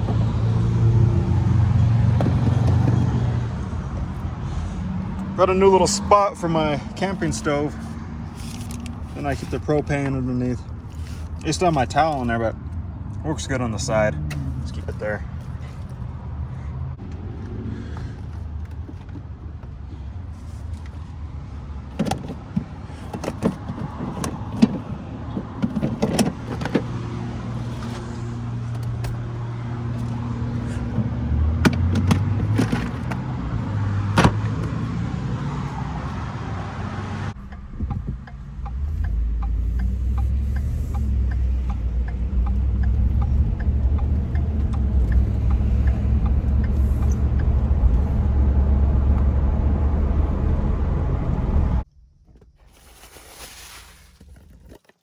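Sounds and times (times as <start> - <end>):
truck engine humming: 0.0 - 51.8
sharp clicks and knocks: 37.4 - 48.0.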